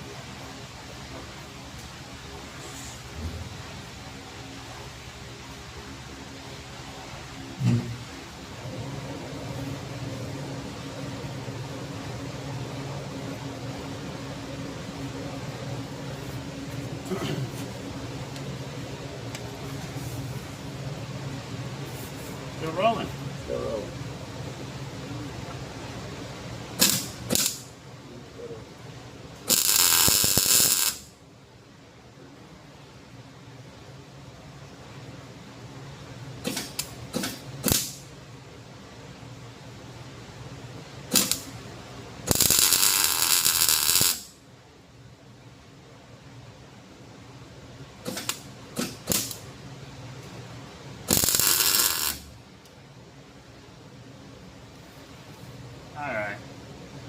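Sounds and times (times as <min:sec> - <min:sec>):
welding arc crackling: 0:26.8 - 0:27.7, 0:29.4 - 0:31.1, 0:36.4 - 0:38.0, 0:41.1 - 0:41.6, 0:42.3 - 0:44.4, 0:48.1 - 0:49.4, 0:51.0 - 0:52.4.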